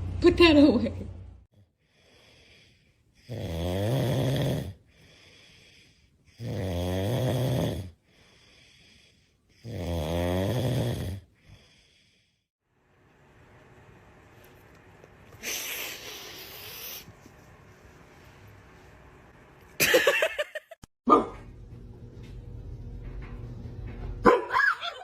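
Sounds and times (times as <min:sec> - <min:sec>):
dog snoring: 0:03.2 - 0:12.2.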